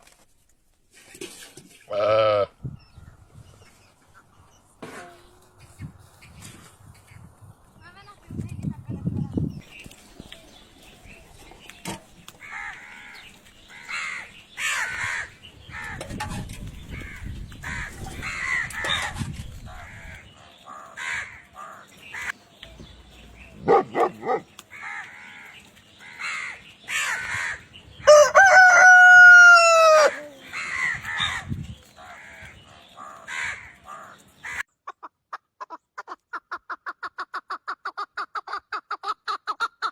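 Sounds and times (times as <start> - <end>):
chickens clucking: 10.1 - 27.3, 28.1 - 39.9
rooster crowing: 28.0 - 30.3.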